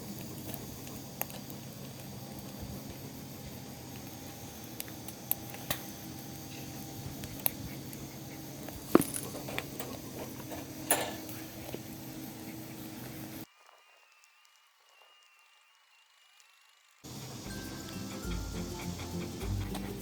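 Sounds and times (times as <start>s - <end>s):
firewood fire crackling: 0.0s - 13.7s.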